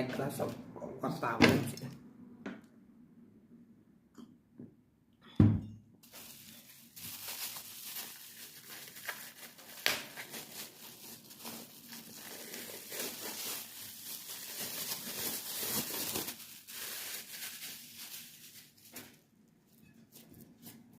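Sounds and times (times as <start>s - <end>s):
crackling crinkling rustle: 6.0s - 19.3s.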